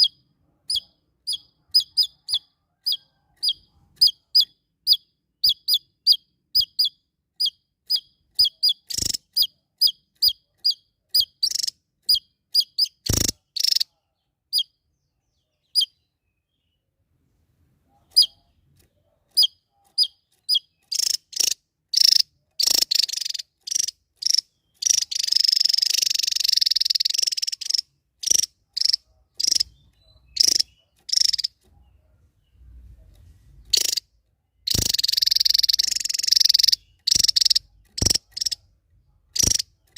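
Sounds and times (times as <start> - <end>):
bird song: 0.0 - 17.0, 17.8 - 39.9
songbird chirping: 0.0 - 39.9.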